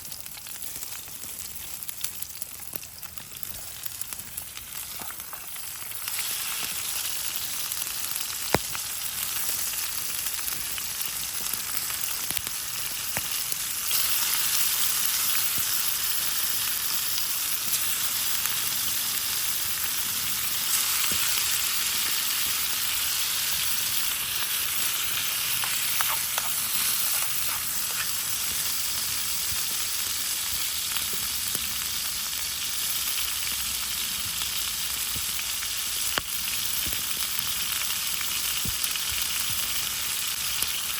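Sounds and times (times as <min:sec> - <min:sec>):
food sizzling in a pan: 0:00.0 - 0:40.9.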